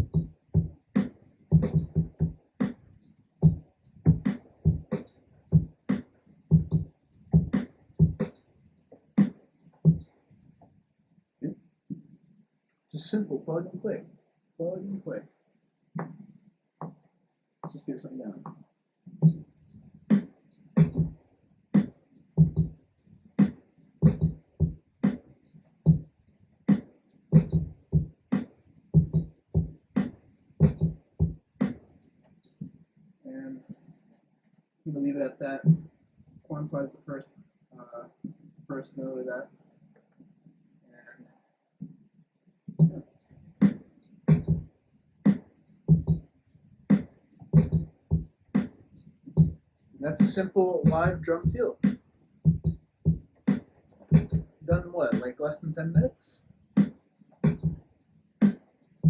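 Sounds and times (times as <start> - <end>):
overdriven kick drum: 0.0 - 0.8, 1.5 - 2.4, 3.4 - 5.7, 6.5 - 8.4, 9.9 - 10.1, 21.8 - 22.7, 24.0 - 24.8, 27.4 - 28.1, 29.0 - 31.8, 43.6 - 44.7, 45.9 - 46.2, 47.6 - 48.7, 49.4 - 49.6, 50.2 - 55.2, 56.8 - 57.8
hi-hat hits: 0.0 - 8.5, 19.2 - 21.2, 21.8 - 22.8, 23.4 - 26.0, 26.7 - 32.6, 42.8 - 44.7, 45.3 - 46.3, 46.9 - 59.0
drum kit beat: 0.0 - 10.2, 19.2 - 21.2, 21.8 - 22.8, 23.4 - 26.1, 26.7 - 32.7, 35.6 - 35.9, 42.7 - 46.3, 46.9 - 59.0.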